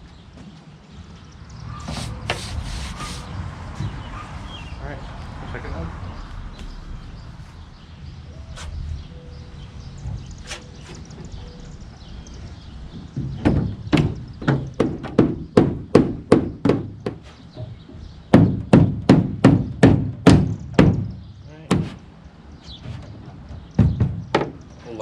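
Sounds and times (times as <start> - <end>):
knocks on aluminum boat hull: 13.0 - 22.1, 23.6 - 24.6.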